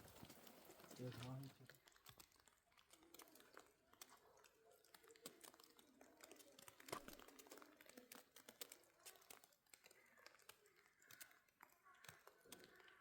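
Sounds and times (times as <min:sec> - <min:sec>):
faint small clicks: 0:00.0 - 0:13.0.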